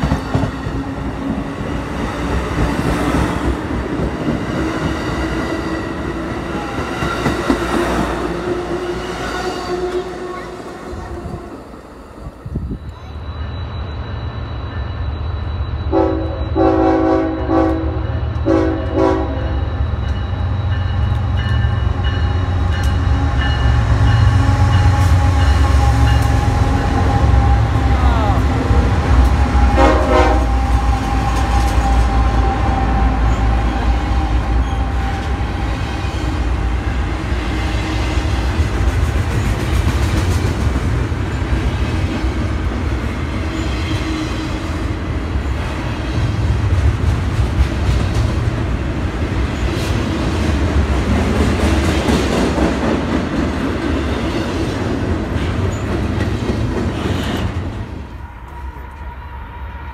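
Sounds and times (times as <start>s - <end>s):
train wheels clattering on rails: 0.0s - 8.1s, 29.1s - 44.8s, 45.4s - 59.0s.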